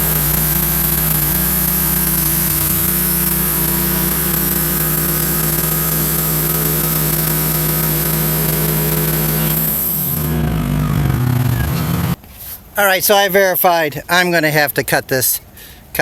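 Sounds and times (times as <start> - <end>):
high hiss: 0.0 - 10.8
bandsaw mill engine hum: 0.0 - 12.2.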